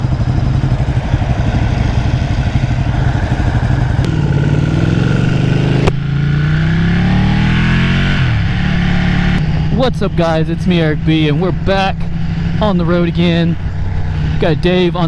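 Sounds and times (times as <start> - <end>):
motorcycle engine accelerating: 0.0 - 15.0
wind rushing past: 6.7 - 14.5.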